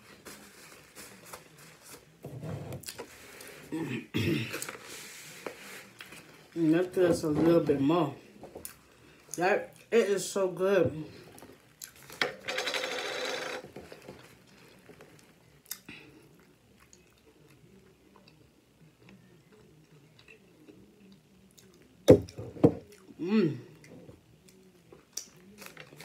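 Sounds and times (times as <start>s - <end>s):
person chewing food: 11.3s - 12.2s, 14.2s - 26.0s.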